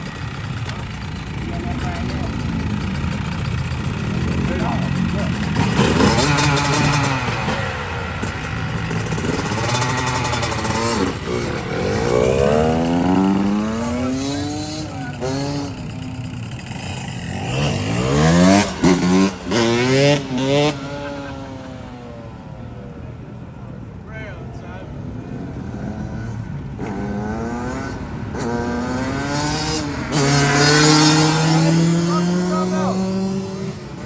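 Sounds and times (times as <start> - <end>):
dirt bike engine revving: 0.0 - 22.5, 25.3 - 34.0.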